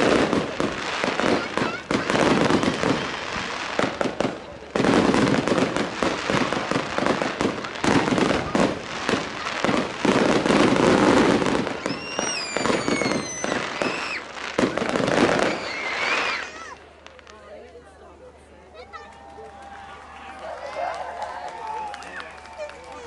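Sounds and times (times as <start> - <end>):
fireworks bangs and crackling: 0.0 - 17.5
falling firework whistles: 10.6 - 16.8.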